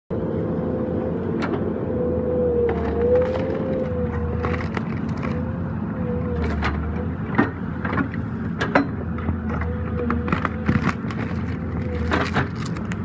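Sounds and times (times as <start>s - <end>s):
excavator engine running: 0.1s - 13.0s
wood and roots cracking: 2.7s - 5.6s, 9.6s - 13.0s.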